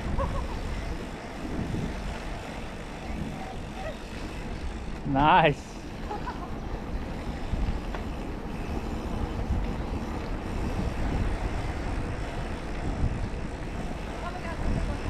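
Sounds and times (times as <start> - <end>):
low rumble of bike rolling: 0.0 - 15.0
wind buffeting microphone: 0.0 - 15.0.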